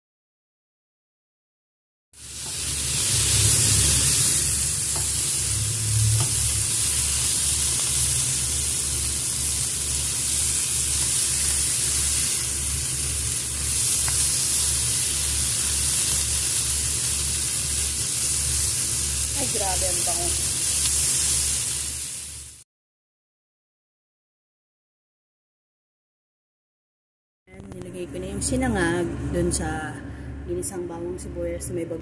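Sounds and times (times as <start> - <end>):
food sizzling in a hot pan: 2.2 - 22.6.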